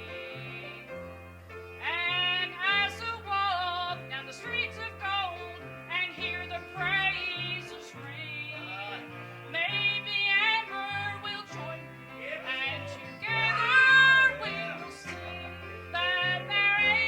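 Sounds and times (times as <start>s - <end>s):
instrumental accompaniment: 0.0s - 17.0s
voices singing gospel song: 1.8s - 17.0s.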